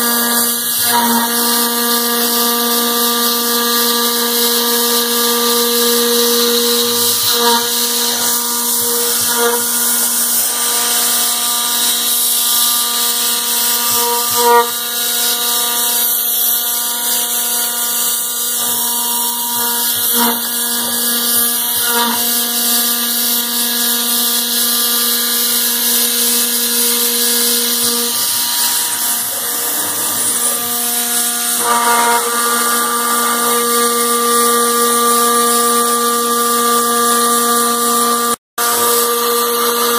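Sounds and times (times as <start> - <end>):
router spindle high whine: 0.0 - 39.9
hiss of milling metal: 27.0 - 33.7.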